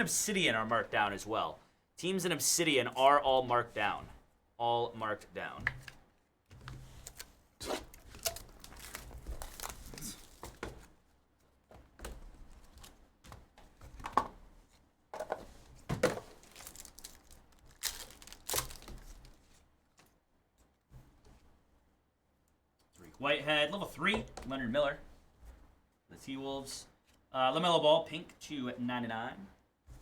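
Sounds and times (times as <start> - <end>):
wrappers crinkling and tearing: 7.1 - 10.6, 16.3 - 19.4.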